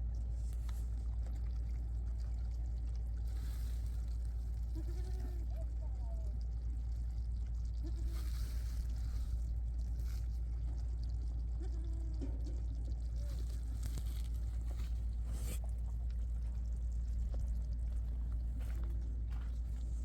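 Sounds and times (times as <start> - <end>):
steady low rumble: 0.0 - 20.0
livestock bleating: 4.7 - 5.5, 7.8 - 8.3.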